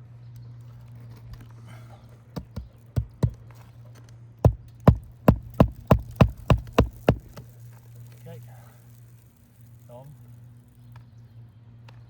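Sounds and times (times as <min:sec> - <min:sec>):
hammer driving nails into shingle: 0:02.4 - 0:03.6, 0:04.4 - 0:07.5.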